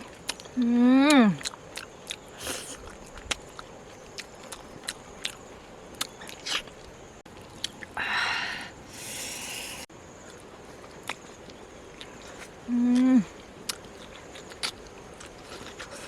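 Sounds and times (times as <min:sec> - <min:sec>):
person chewing food: 0:00.0 - 0:00.7, 0:01.3 - 0:08.0, 0:08.8 - 0:16.0
hiss-like noise: 0:08.0 - 0:09.9.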